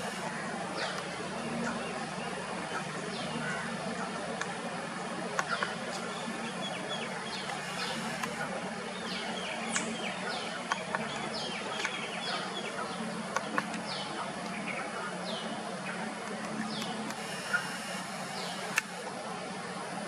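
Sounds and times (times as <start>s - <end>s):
small birds chirping: 0.0s - 19.0s
background hiss: 0.0s - 20.0s
low hum: 0.0s - 20.0s
sharp clicks: 7.4s - 8.4s, 16.2s - 19.0s.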